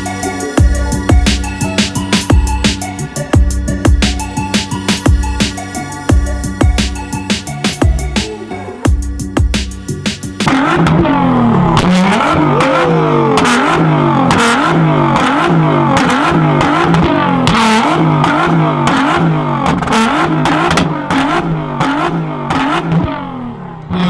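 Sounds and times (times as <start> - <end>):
car engine revving in blips: 0.0 - 24.0
exhaust pops and cracks: 7.8 - 12.5, 13.4 - 23.3.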